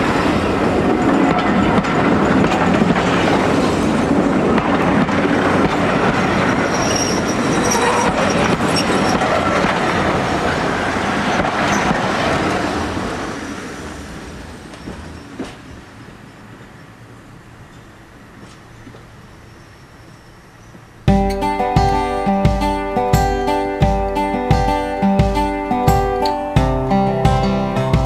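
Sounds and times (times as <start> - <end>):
train wheels clicking over rail joints: 0.0 - 16.2, 17.6 - 19.3
high flange squeal: 6.4 - 9.6.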